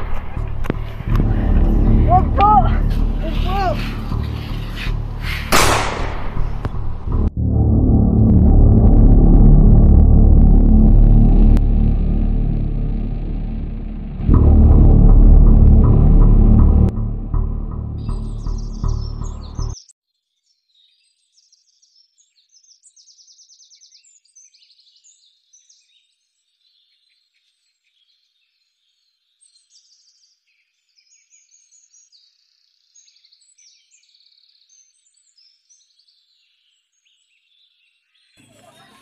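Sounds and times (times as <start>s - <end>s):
music: 0.0s - 19.8s
songbirds chirping and trilling: 0.3s - 6.8s, 18.0s - 39.0s.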